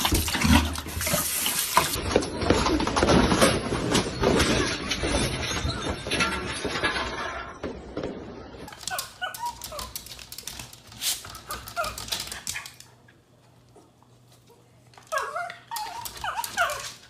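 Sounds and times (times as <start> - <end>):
dog whimpering: 15.1 - 17.0.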